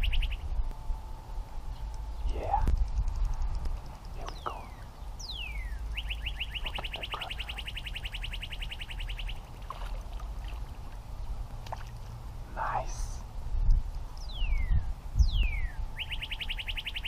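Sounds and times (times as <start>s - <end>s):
songbird whistles and trill: 0.0s - 0.5s, 4.4s - 9.4s, 14.2s - 17.0s
wind rumble: 0.0s - 17.0s.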